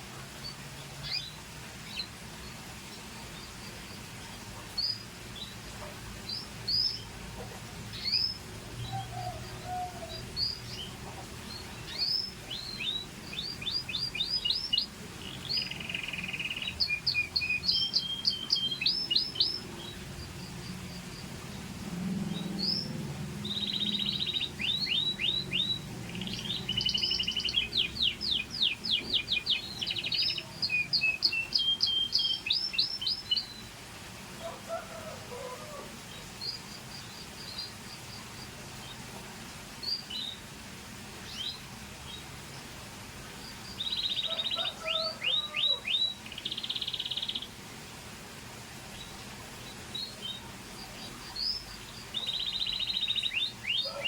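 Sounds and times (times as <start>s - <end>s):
canary singing trills: 3.3s - 21.4s, 22.1s - 33.7s, 43.4s - 47.6s, 49.0s - 54.0s.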